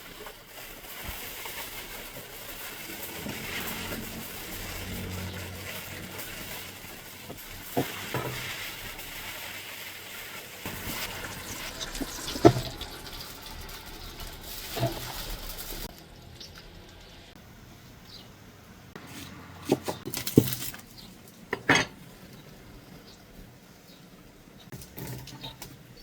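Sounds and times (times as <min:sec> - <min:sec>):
meat sizzling in a pan: 0:00.0 - 0:17.1.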